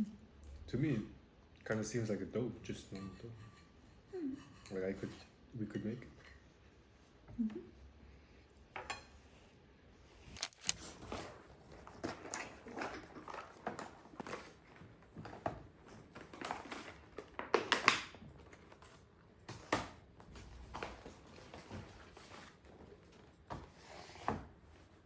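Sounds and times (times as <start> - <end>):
cutlery on plates: 2.8 - 6.4.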